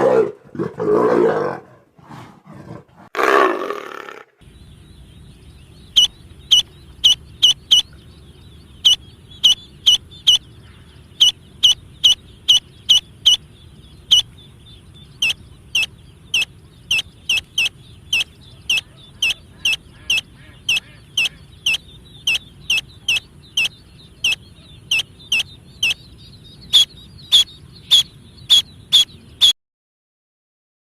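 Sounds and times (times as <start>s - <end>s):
chicken calling: 5.9s - 8.0s, 8.8s - 10.4s, 14.0s - 14.4s, 15.2s - 26.0s, 26.6s - 29.5s.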